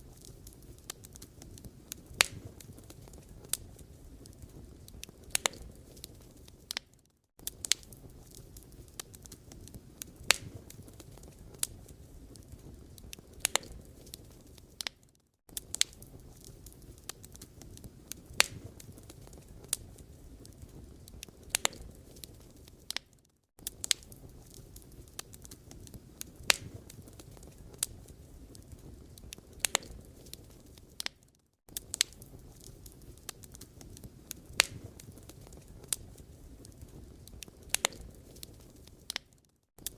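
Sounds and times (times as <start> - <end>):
low steady rush of fire: 0.0 - 39.9
wood fire crackling and popping: 0.0 - 39.9.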